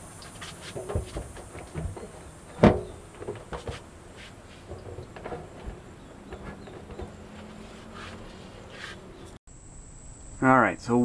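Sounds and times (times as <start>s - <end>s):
clicks and knocks on car parts: 0.2s - 8.2s.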